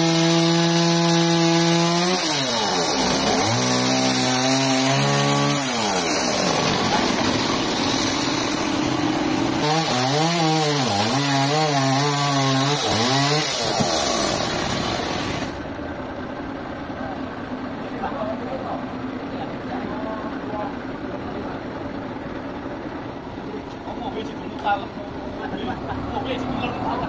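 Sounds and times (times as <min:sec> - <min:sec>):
chainsaw cutting wood: 0:00.0 - 0:15.6.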